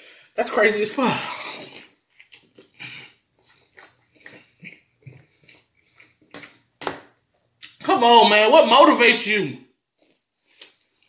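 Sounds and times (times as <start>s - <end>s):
chewing and lip-smacking: 1.3s - 6.8s, 9.9s - 11.0s.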